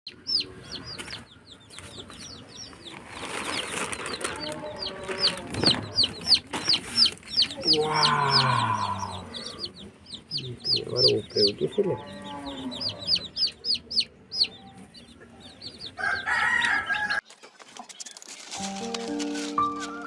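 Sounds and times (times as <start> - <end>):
chicks peeping: 0.1 - 19.6
lower longer call: 7.6 - 9.6.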